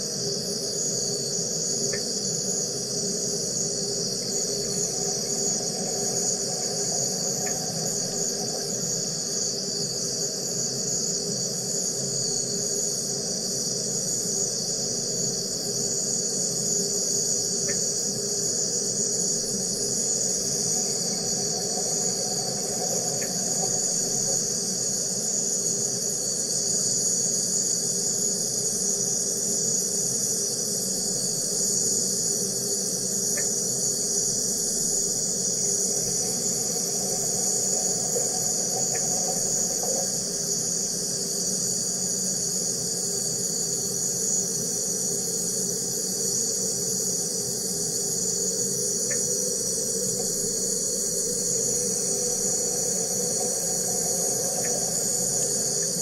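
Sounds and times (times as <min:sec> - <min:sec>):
machine high-pitched buzzing hiss: 0:00.0 - 0:56.0.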